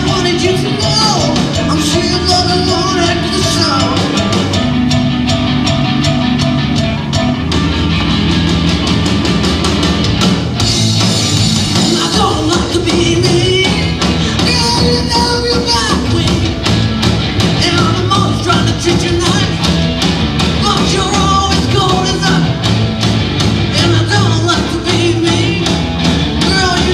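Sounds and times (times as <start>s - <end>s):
drum kit beat: 0.0s - 26.9s
live rock band playing: 0.0s - 26.9s.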